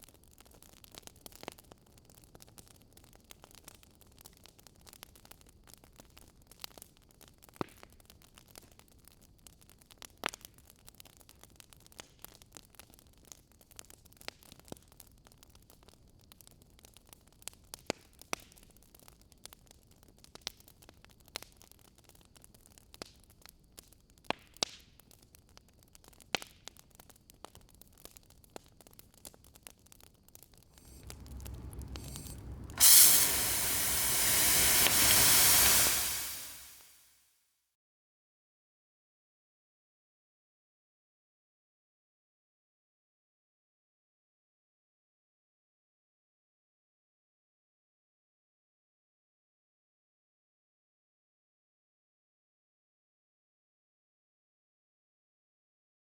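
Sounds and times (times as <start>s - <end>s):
campfire crackling: 0.0s - 36.8s
hissing water spray: 30.8s - 36.8s
low rumble: 30.8s - 36.8s.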